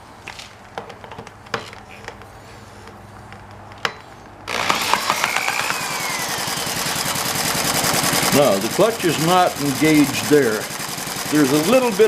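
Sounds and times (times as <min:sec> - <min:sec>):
small model engine running: 0:04.5 - 0:12.0.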